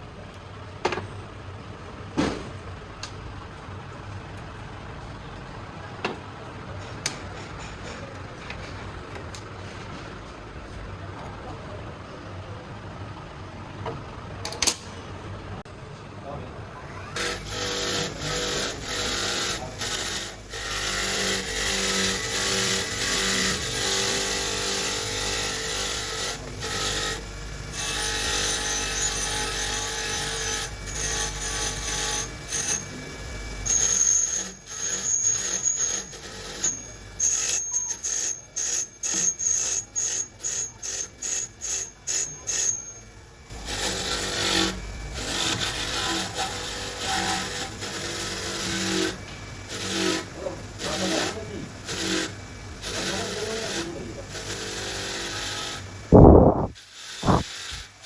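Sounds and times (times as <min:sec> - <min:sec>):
faint machine hum: 0:00.0 - 0:58.0
hand tool scraping metal: 0:17.2 - 0:33.0, 0:33.6 - 0:58.0.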